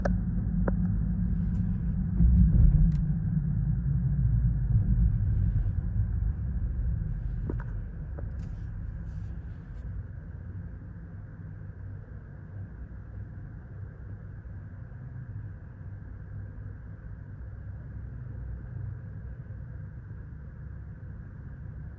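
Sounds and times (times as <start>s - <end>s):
heavy machinery engine rumble: 0.0s - 9.8s.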